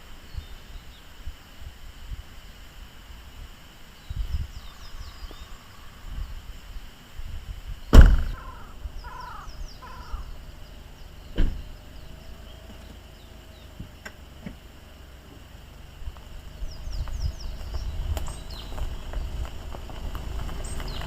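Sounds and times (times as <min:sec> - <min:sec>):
small birds chirping: 0:00.0 - 0:01.2, 0:03.8 - 0:06.9, 0:07.7 - 0:21.0
faint insect drone: 0:00.0 - 0:21.0
loud thump: 0:07.9 - 0:08.6, 0:11.3 - 0:11.7.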